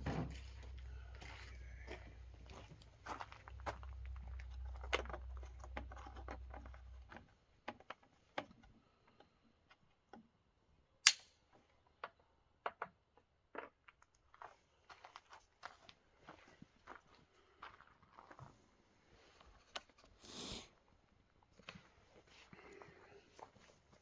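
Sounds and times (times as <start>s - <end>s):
sharp loud click: 11.0s - 11.4s.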